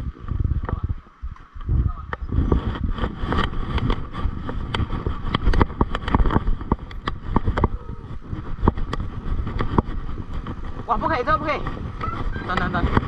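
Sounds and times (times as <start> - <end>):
tyres and wind rumble: 0.0 - 13.0
bike clicking and rattling: 2.6 - 13.0.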